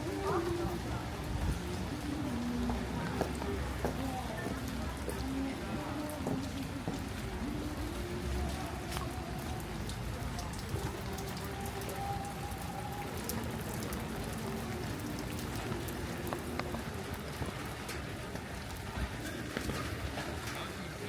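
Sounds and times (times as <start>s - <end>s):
rain falling: 0.0s - 21.0s
drops ticking on a surface: 8.4s - 20.7s.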